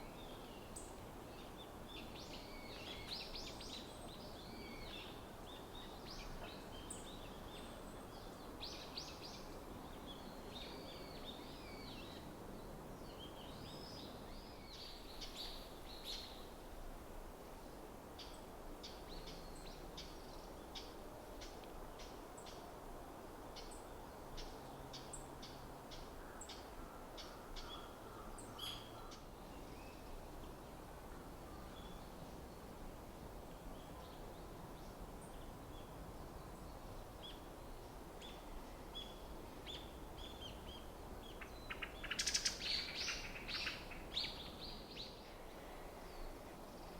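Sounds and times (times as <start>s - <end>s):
songbirds twittering: 33.7s - 46.9s.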